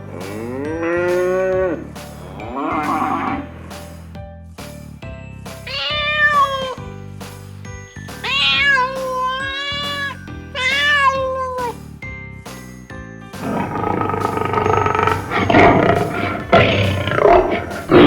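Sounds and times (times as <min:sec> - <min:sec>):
background music: 0:00.0 - 0:18.0
cat meowing: 0:05.7 - 0:06.8, 0:08.2 - 0:11.8.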